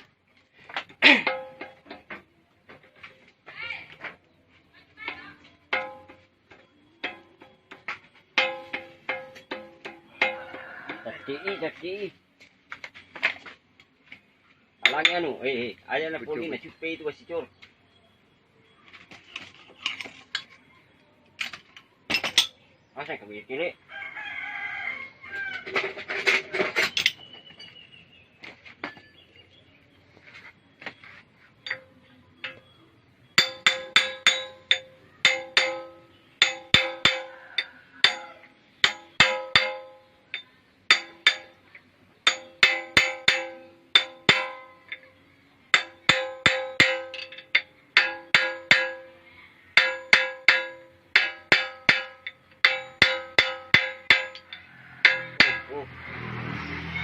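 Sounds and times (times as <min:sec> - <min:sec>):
hammer striking metal: 0:01.1 - 0:02.1, 0:05.7 - 0:06.3, 0:08.4 - 0:11.0, 0:14.8 - 0:15.4, 0:31.6 - 0:32.7, 0:33.4 - 0:41.6, 0:42.2 - 0:49.2, 0:49.8 - 0:56.3.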